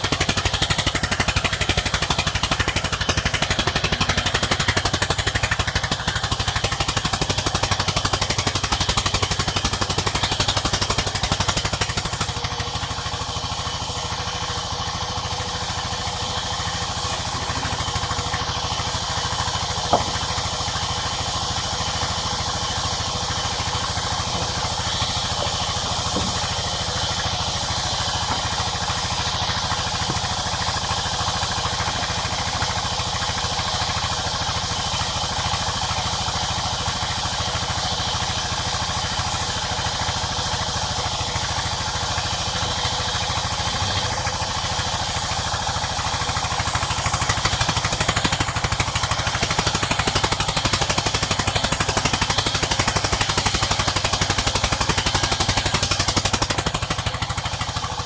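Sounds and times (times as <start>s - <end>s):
sawmill engine running: 0.0s - 58.0s
sharp knock: 19.9s - 20.3s.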